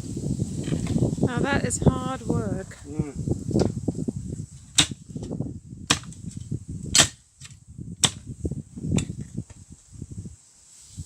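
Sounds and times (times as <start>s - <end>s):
hand tool striking: 7.0s - 8.2s.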